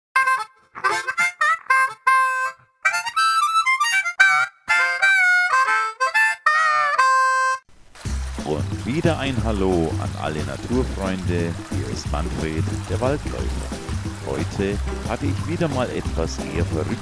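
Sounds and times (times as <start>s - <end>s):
harmonica melody: 0.2s - 7.7s.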